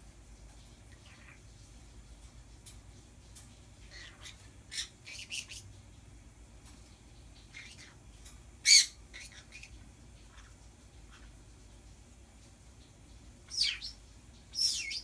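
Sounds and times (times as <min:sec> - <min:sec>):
pet birds chirping and squawking: 0:00.7 - 0:01.6, 0:03.3 - 0:06.0, 0:07.1 - 0:11.8, 0:12.7 - 0:15.0.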